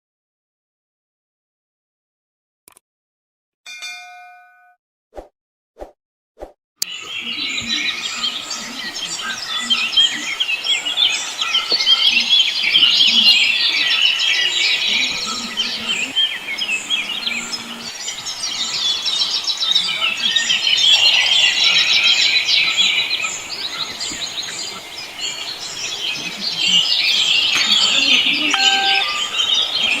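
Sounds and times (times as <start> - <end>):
flock of birds chirping: 6.8 - 30.0.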